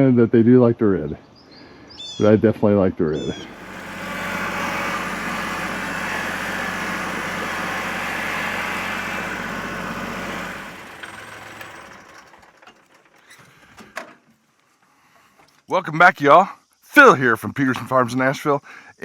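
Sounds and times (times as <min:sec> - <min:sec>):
engine idling: 0:03.4 - 0:13.8.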